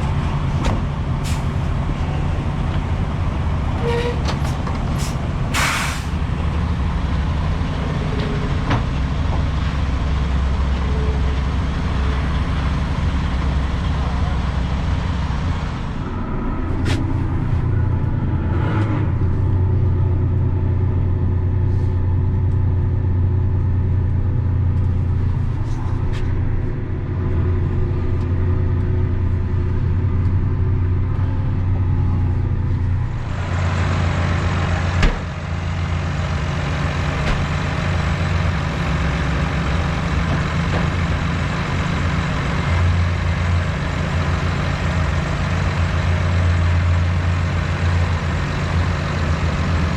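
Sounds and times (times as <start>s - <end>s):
diesel engine running: 0.0s - 49.9s
hiss: 5.0s - 6.2s.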